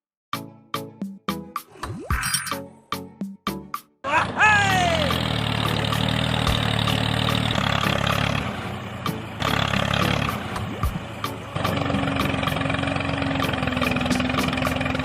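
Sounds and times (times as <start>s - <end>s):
small engine running: 4.6s - 15.0s.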